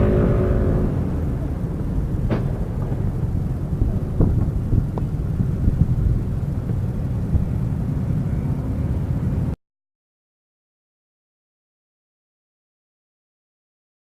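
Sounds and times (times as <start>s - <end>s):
car engine rumble: 0.0s - 9.6s
road noise: 0.0s - 9.6s.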